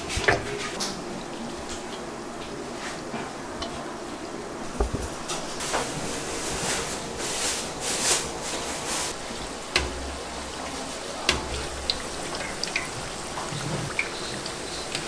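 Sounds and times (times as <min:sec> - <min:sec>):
hot oil sizzling: 0:05.5 - 0:15.0
utensil knocking: 0:09.2 - 0:15.0.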